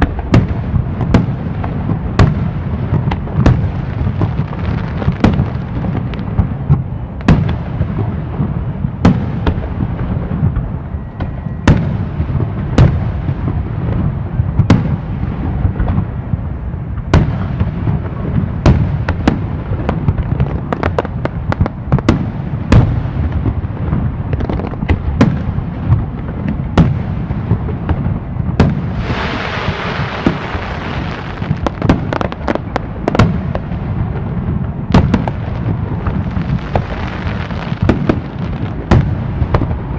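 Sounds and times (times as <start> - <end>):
fireworks bangs: 0.0 - 39.9
hissing crackle: 27.6 - 39.9.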